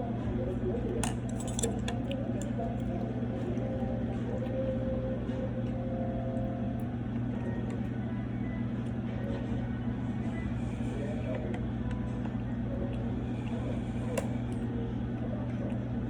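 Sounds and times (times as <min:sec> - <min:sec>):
faint background chatter: 0:00.0 - 0:16.0
restaurant room hum: 0:00.0 - 0:16.0
utensils clinking on dishes: 0:01.0 - 0:02.6.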